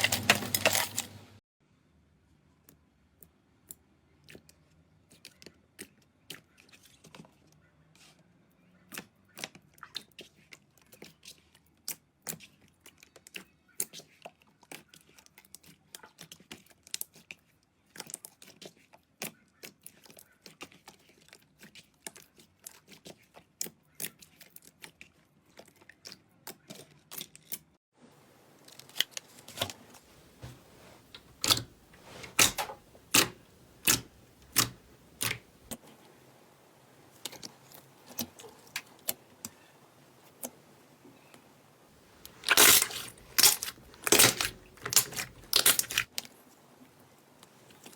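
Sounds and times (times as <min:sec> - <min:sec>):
slime clicking and popping: 0:32.4 - 0:35.4.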